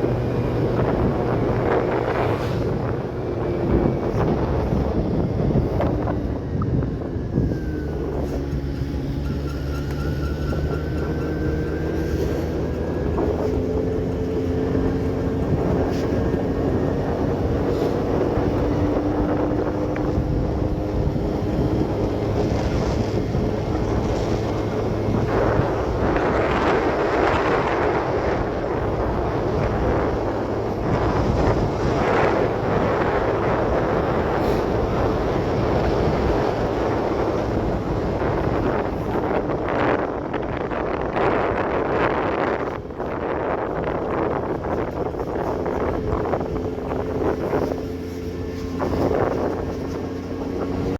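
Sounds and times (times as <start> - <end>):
wind buffeting microphone: 0.0 - 50.9
motorcycle engine running: 41.9 - 50.9.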